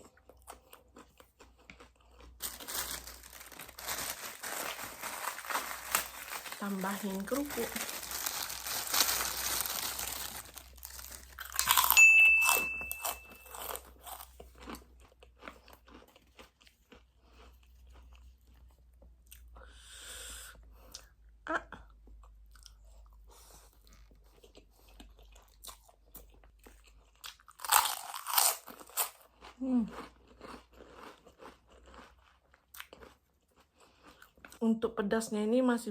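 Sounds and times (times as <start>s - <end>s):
crackers crunching: 0.0s - 18.7s, 24.4s - 34.6s
plastic crinkling: 2.4s - 12.0s.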